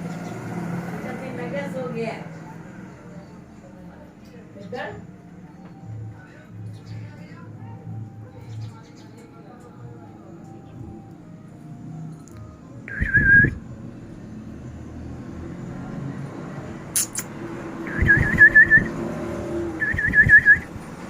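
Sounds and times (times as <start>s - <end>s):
cockatiel whistling: 12.9s - 13.6s, 17.0s - 19.0s, 19.8s - 20.7s
sharp click: 17.0s - 17.3s.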